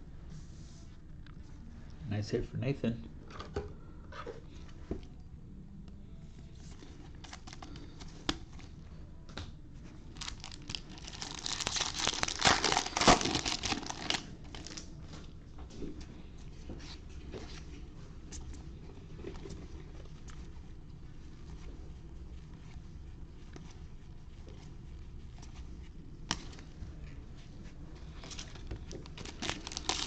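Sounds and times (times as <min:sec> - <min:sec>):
wrapper tearing and crinkling: 0:07.2 - 0:07.8, 0:10.1 - 0:14.9, 0:28.2 - 0:30.0
cards clicking and rustling: 0:28.2 - 0:30.0.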